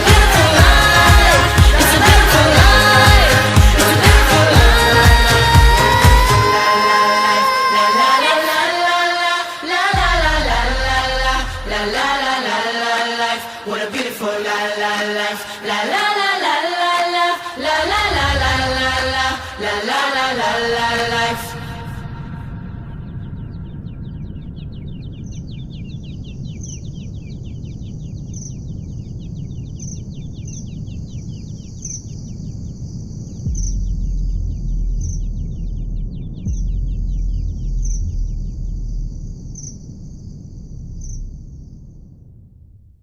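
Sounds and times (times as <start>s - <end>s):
low rumble: 0.0s - 6.9s, 10.0s - 12.4s, 17.6s - 43.0s
rapid chirping: 24.9s - 42.0s
high insect-like trill: 37.6s - 41.9s.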